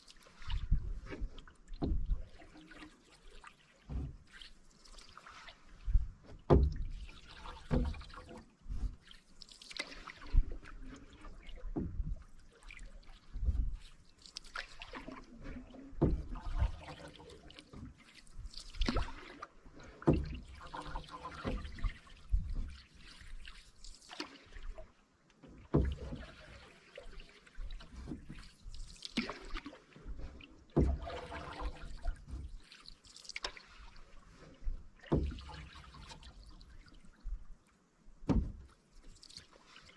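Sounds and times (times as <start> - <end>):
water dripping off paddle: 0.0 - 37.4, 38.2 - 39.9
canoe paddle strokes: 0.0 - 39.9.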